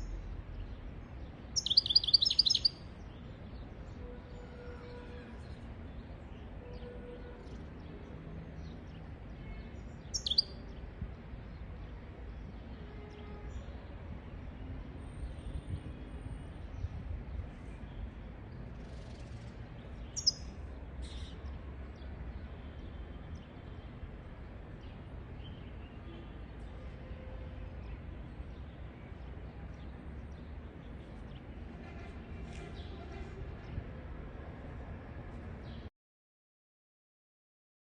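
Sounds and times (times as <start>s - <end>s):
goldfinch chirps: 1.6s - 2.8s, 10.1s - 10.6s, 20.0s - 21.3s.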